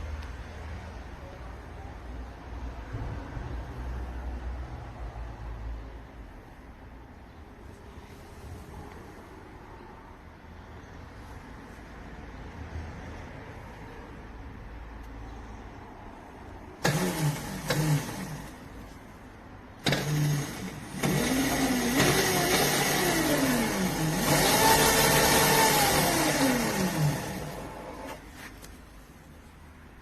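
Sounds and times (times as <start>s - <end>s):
electric motor whining: 16.8s - 18.6s, 19.8s - 28.2s.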